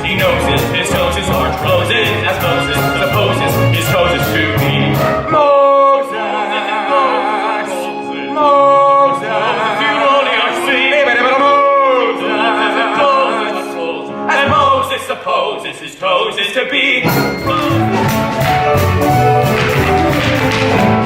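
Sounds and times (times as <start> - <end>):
singers holding notes with vibrato: 0.0 - 14.6.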